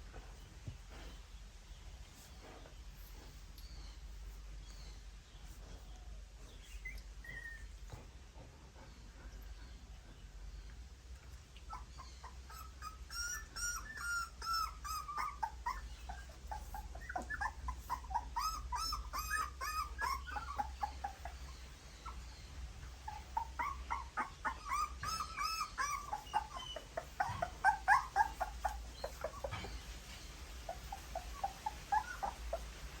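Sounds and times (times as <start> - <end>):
puppies squeaking and whimpering: 4.7 - 8.2, 11.6 - 33.0.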